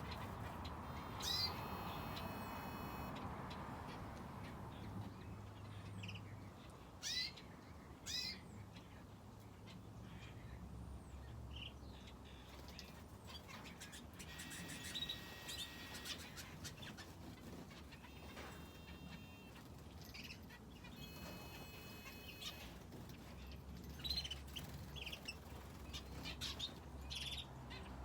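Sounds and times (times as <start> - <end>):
rapid bird twittering: 0.0 - 3.1, 12.6 - 27.5
sweeping bird calls: 0.0 - 3.2, 12.5 - 23.4
small birds chirping: 0.0 - 28.0.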